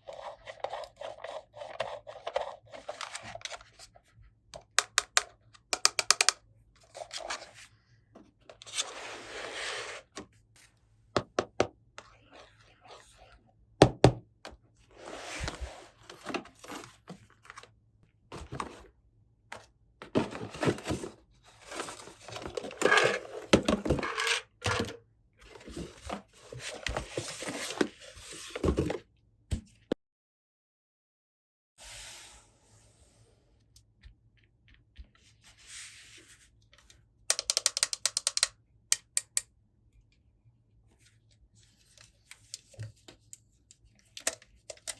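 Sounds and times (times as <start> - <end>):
plastic toy pieces clicking: 4.6 - 6.4, 37.3 - 39.4.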